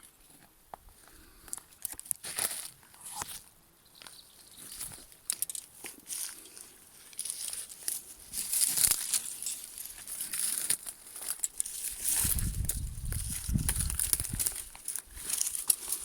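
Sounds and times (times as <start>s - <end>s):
rustling and crackling with clicks: 1.4s - 16.0s.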